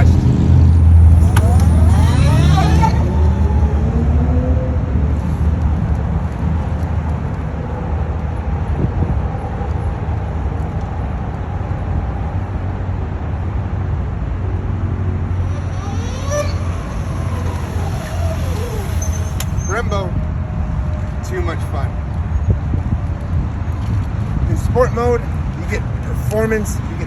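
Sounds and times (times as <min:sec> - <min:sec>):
wind rumble: 0:00.0 - 0:27.0
electric motor whine: 0:00.7 - 0:04.6, 0:15.3 - 0:19.9.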